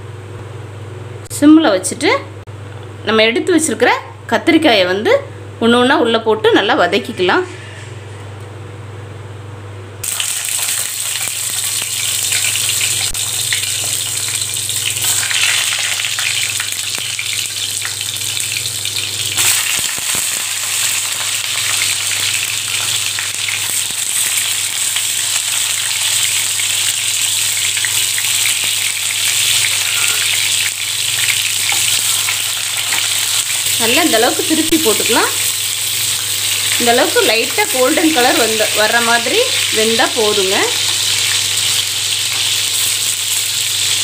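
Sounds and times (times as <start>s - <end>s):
vegetables sizzling in hot oil: 10.0s - 44.0s.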